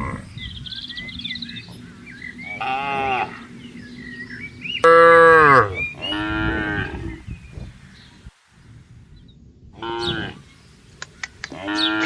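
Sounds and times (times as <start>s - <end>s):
cattle mooing: 0.0s - 0.4s, 1.6s - 7.3s, 9.8s - 10.5s, 11.5s - 12.0s.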